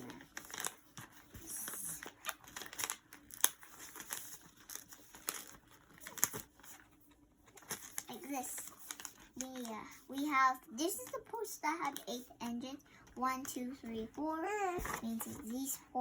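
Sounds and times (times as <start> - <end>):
paper being folded and creased: 0.0 - 10.2.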